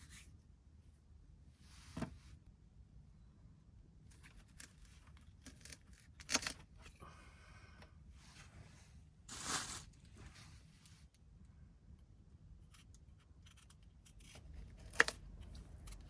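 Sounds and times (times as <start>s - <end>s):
handling rustles and scrapes: 0.0s - 0.4s, 1.6s - 2.4s, 8.2s - 11.2s.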